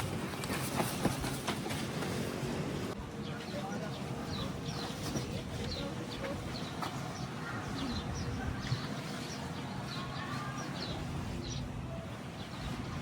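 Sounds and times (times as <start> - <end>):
small birds chirping: 3.1 - 13.0.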